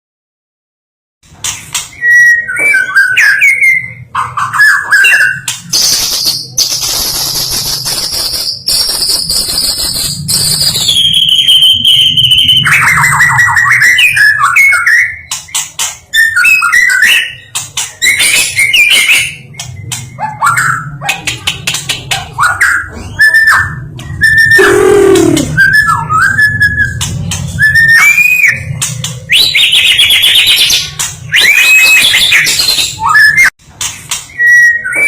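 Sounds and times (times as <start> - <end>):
songbird singing whistled phrases: 1.9 - 20.9, 22.4 - 28.7, 29.3 - 33.5, 34.3 - 35.0.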